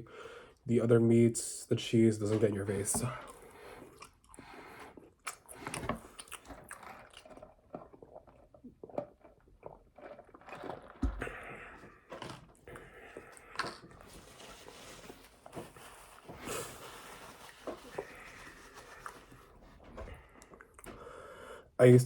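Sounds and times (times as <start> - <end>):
biting and chewing: 2.4 - 21.4
wet smacking mouth sounds: 3.2 - 14.1.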